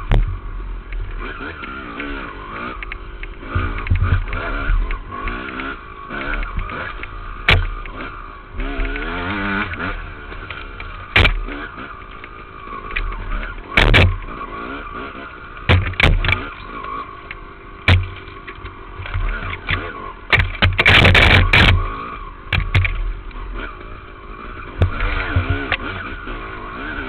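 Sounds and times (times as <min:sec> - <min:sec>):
sharp knocks: 0:00.0 - 0:00.4, 0:07.4 - 0:08.0, 0:10.5 - 0:11.6, 0:13.8 - 0:14.3, 0:15.6 - 0:16.6, 0:17.8 - 0:21.9, 0:22.5 - 0:23.1
dirt bike engine revving: 0:00.0 - 0:27.0.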